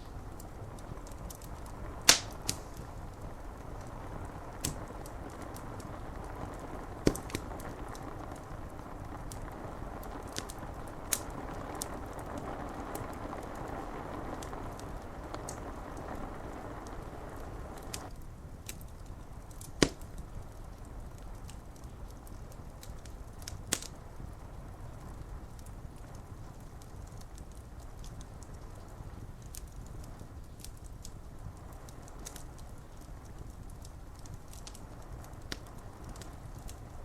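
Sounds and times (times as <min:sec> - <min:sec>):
rain on window glass: 0:00.0 - 0:18.2
wood fire crackling and popping: 0:00.0 - 0:37.0.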